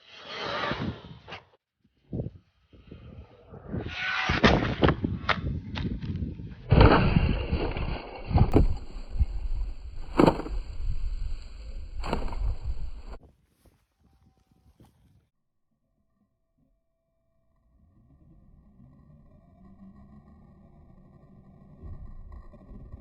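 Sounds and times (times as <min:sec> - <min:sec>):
tyres through grass: 0:08.5 - 0:15.3.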